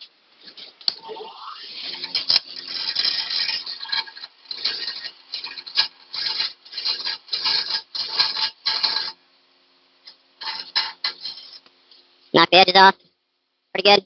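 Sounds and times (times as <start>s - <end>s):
faint motor hum: 0.0s - 13.7s
grinder rasping on steel: 0.5s - 9.2s, 10.4s - 11.7s.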